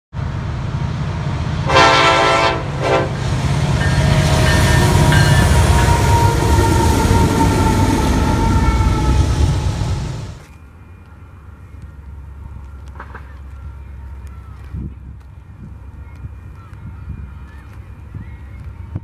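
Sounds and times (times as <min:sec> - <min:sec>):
freight train rumbling past: 0:00.1 - 0:10.5
train air horn blasts: 0:01.6 - 0:10.4.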